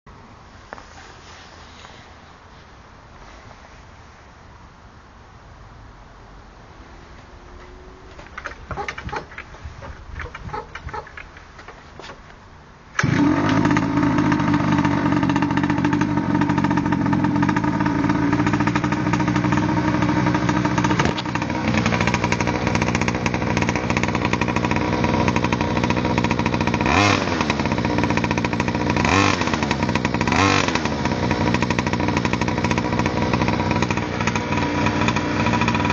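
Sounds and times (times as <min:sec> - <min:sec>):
engine revving: 0:06.8 - 0:09.3, 0:13.0 - 0:35.9
small two-stroke engine running: 0:07.3 - 0:11.5, 0:12.9 - 0:35.9.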